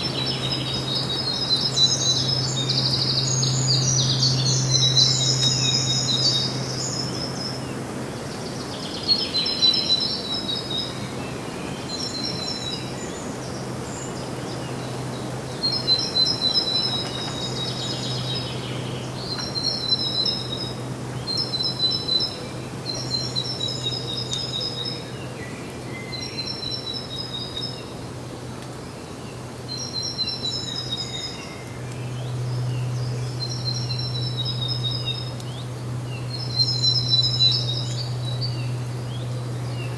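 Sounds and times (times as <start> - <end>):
birds chirping: 0.0 - 39.9
steady low hum: 29.4 - 39.9.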